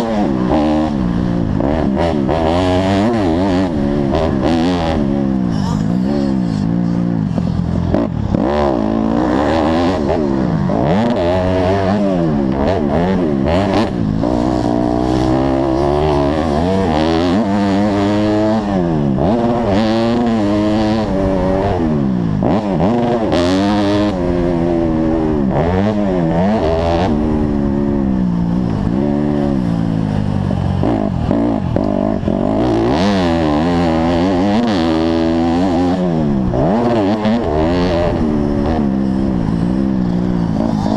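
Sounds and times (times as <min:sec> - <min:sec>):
motocross bike engine revving: 0:00.0 - 0:40.9.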